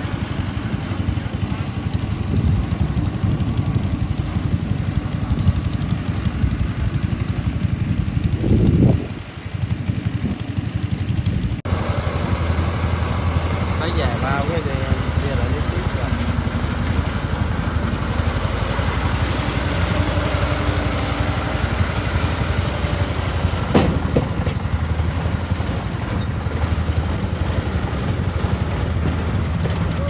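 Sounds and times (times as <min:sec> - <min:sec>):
engine running steadily: 0:00.0 - 0:30.0
sharp knock: 0:23.7 - 0:24.6.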